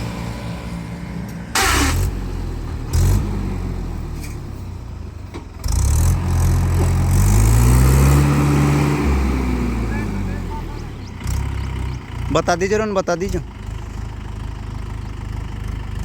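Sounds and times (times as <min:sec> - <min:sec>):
tractor diesel engine revving: 0:00.0 - 0:16.0
short loud noise bursts: 0:01.6 - 0:02.2.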